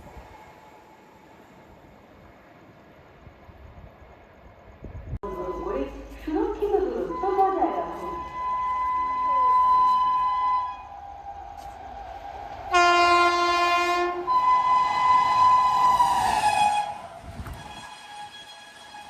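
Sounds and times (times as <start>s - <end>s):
train horn blasts: 7.1s - 11.6s, 12.7s - 19.0s.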